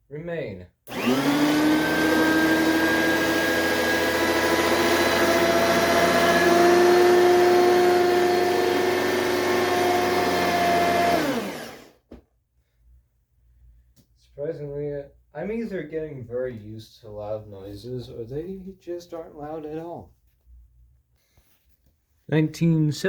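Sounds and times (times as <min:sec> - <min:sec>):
vacuum cleaner motor whining: 0:00.9 - 0:12.0.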